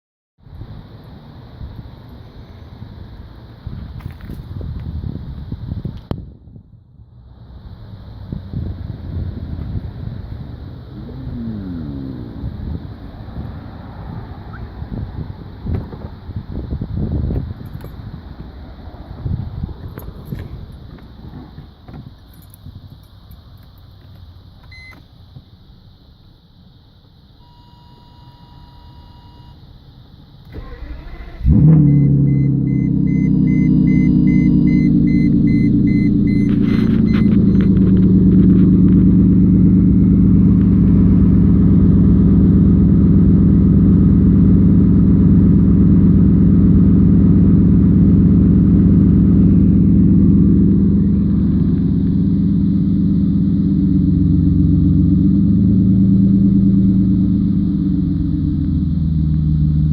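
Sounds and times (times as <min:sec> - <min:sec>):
car engine idling: 0:06.8 - 0:27.4, 0:30.1 - 0:59.9
short electronic beeps: 0:24.7 - 0:25.0, 0:27.4 - 0:29.6, 0:31.8 - 0:37.8
starter cranking engine: 0:30.5 - 0:31.7.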